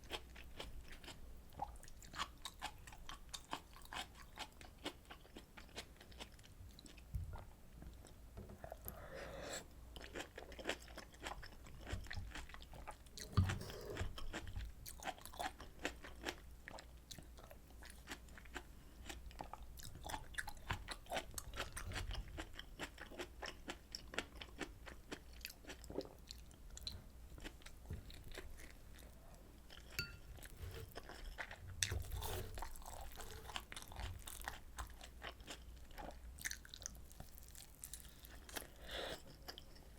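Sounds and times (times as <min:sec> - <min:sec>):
chewing with wet mouth clicks: 0:10.0 - 0:39.9.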